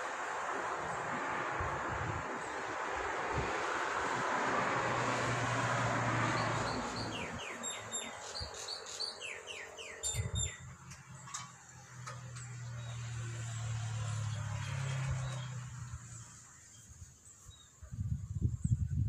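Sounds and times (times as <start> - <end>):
bird chirping: 6.4 - 11.5.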